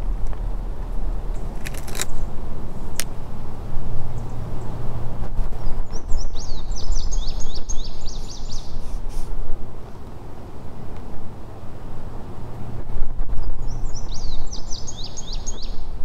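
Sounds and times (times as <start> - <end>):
loud low rumble: 0.0 - 6.0
songbird singing: 5.6 - 9.0, 13.4 - 16.0.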